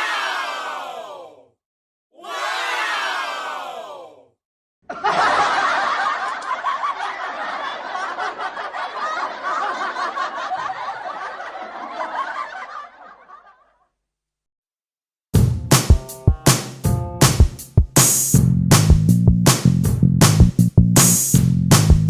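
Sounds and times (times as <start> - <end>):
laughter: 4.8 - 13.9.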